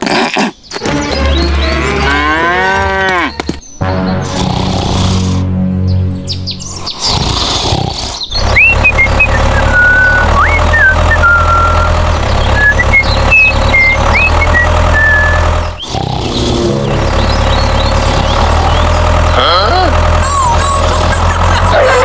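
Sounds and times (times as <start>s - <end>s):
heavy diesel engine running: 0.8s - 2.1s, 8.3s - 22.0s
high sliding whistles: 8.3s - 15.9s.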